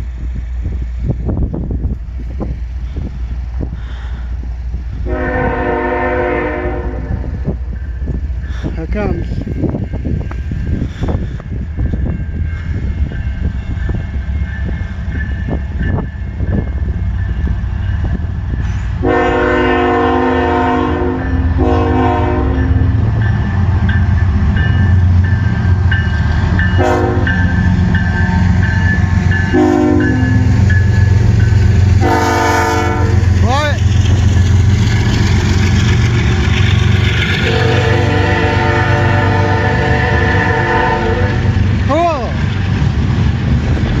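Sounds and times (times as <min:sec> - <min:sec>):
diesel locomotives rumbling: 0:00.0 - 0:44.0
train air horn blasts: 0:05.0 - 0:07.4, 0:19.0 - 0:23.0, 0:26.8 - 0:27.4, 0:29.5 - 0:30.4, 0:32.0 - 0:33.3, 0:37.3 - 0:41.6
crossing bell dinging: 0:11.4 - 0:18.9, 0:21.1 - 0:33.3, 0:34.2 - 0:35.7.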